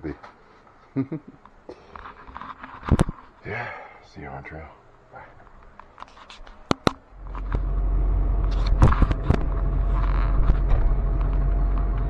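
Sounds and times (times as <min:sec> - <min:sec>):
car engine rumble inside cabin: 0:07.1 - 0:12.0.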